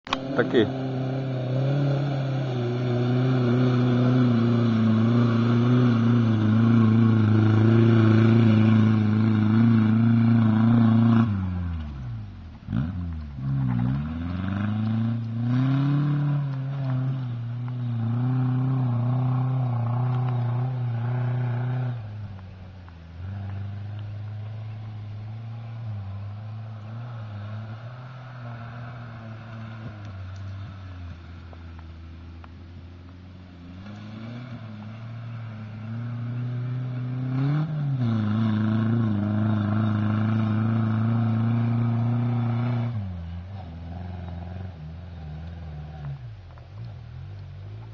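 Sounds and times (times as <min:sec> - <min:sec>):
off-road vehicle engine revving: 0:00.0 - 0:47.9.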